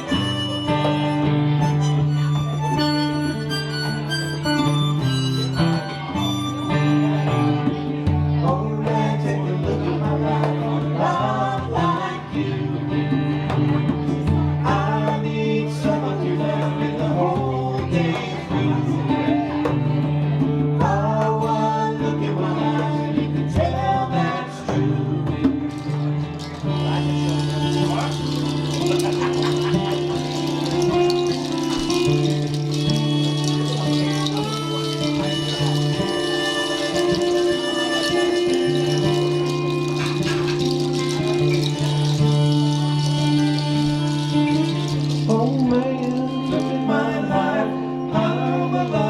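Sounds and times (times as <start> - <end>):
harmonica or sung melody: 0.0 - 7.9, 26.3 - 49.0
acoustic guitar: 0.0 - 49.0.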